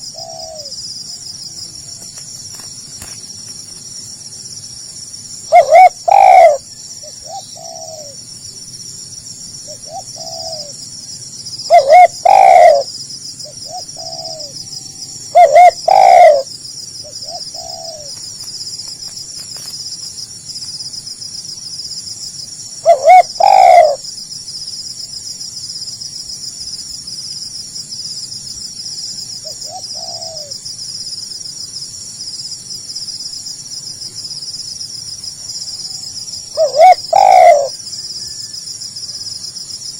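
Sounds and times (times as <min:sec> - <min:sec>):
dove cooing: 0:00.0 - 0:00.8, 0:05.5 - 0:08.2, 0:09.7 - 0:10.7, 0:11.7 - 0:14.6, 0:15.3 - 0:18.2, 0:22.8 - 0:24.0, 0:29.4 - 0:30.6, 0:36.5 - 0:37.8
high-pitched insect trill: 0:00.0 - 0:39.9.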